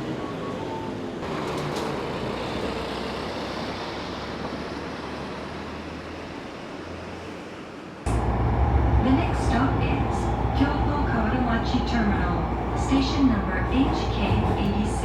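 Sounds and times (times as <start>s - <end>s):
train wheels and motors rumbling: 8.1s - 15.0s.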